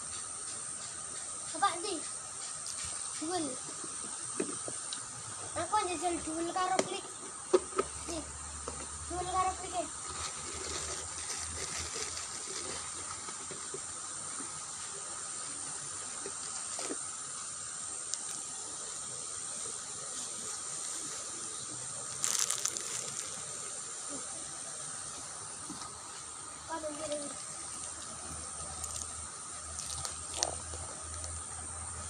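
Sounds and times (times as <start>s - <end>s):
shallow water running in ditch: 9.2s - 32.0s.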